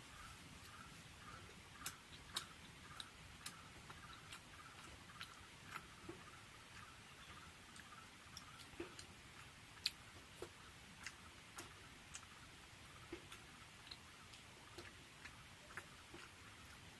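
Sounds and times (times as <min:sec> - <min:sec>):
mouth chewing with wet clicks: 0:00.0 - 0:16.9.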